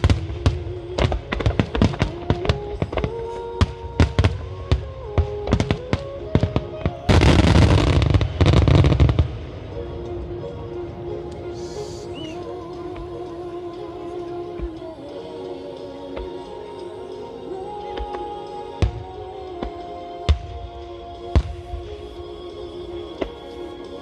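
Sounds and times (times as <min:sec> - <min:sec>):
fireworks bursting: 0:00.0 - 0:12.5
music from loudspeakers: 0:00.0 - 0:24.0.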